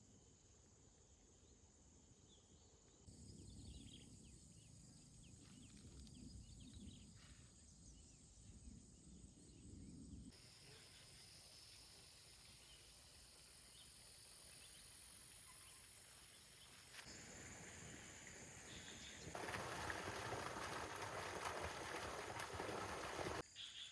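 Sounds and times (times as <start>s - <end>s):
high insect drone: 10.3s - 19.7s.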